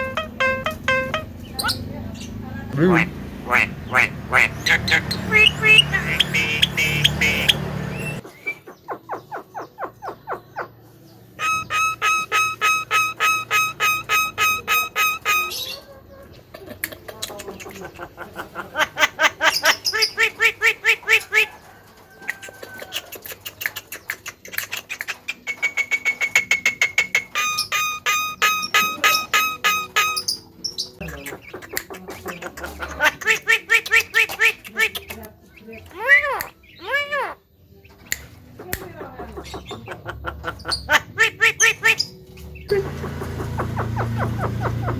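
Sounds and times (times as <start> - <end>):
evenly spaced pitched pulses: 0.0 - 1.9
falling chirps: 0.0 - 2.4, 11.4 - 15.9, 25.4 - 31.0
bird giving harsh calls: 0.0 - 8.3, 11.4 - 15.8, 26.4 - 35.0, 39.2 - 44.9.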